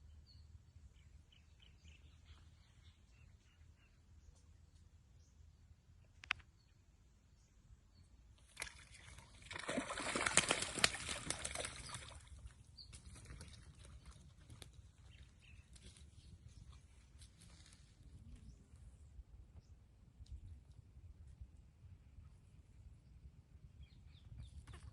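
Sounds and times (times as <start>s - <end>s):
water splashing and sloshing: 8.4s - 15.1s.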